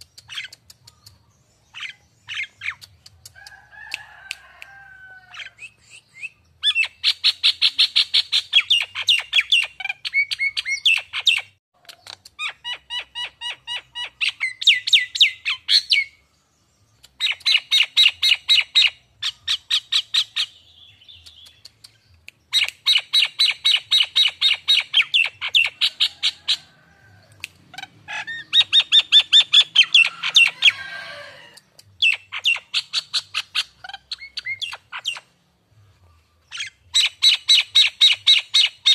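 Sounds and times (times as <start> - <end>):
bird chattering calls: 27.7 - 30.8, 31.9 - 35.3.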